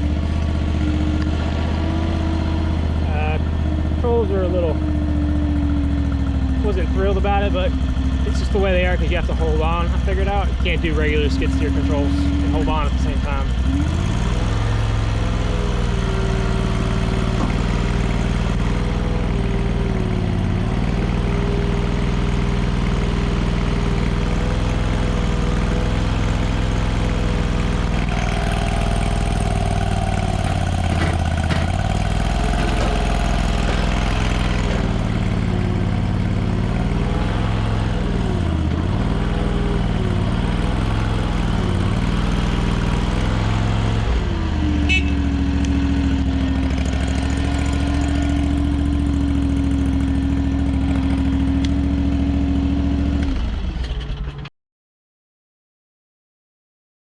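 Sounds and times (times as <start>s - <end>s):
small gasoline engine whining: 0.0s - 54.3s.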